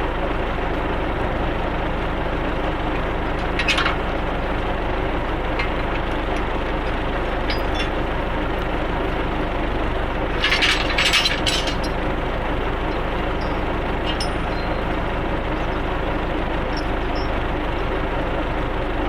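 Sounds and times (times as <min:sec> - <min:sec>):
tractor engine running under load: 0:00.0 - 0:19.0
rattling knocks: 0:03.0 - 0:04.4, 0:05.4 - 0:08.3, 0:10.3 - 0:17.5.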